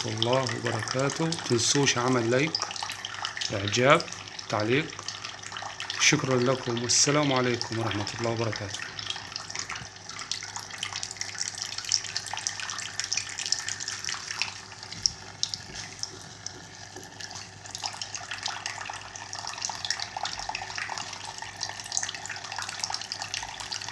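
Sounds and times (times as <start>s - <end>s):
fountain water splashing: 0.0s - 2.8s, 3.4s - 5.0s, 6.0s - 9.9s
faint steady hum: 0.0s - 23.9s.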